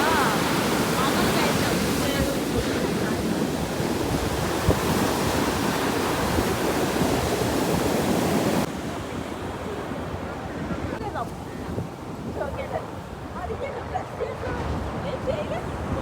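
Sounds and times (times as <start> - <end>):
sea waves washing on shore: 0.0 - 16.0
wind buffeting microphone: 0.0 - 16.0.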